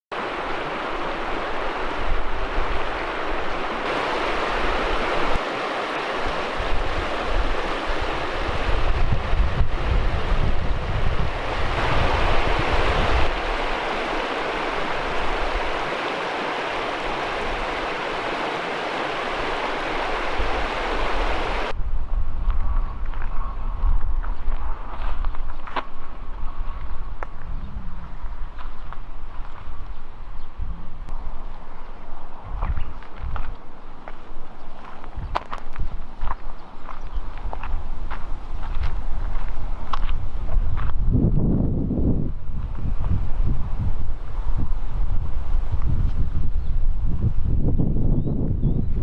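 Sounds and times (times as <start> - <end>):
wind rushing: 0.2 - 25.0
wind gusts buffeting microphone: 0.2 - 49.0.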